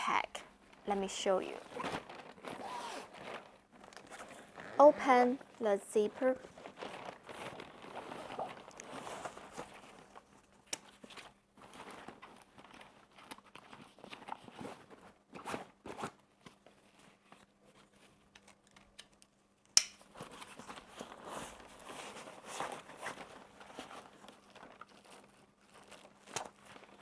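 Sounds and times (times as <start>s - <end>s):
fabric bag rustling: 0.6s - 10.4s, 20.2s - 27.0s
sharp click: 19.8s - 20.0s.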